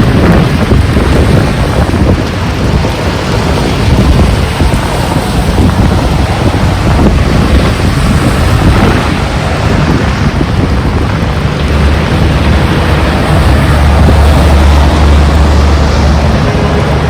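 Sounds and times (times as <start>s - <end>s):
heavy rain: 0.0s - 17.0s
wind gusting across microphone: 0.0s - 17.0s.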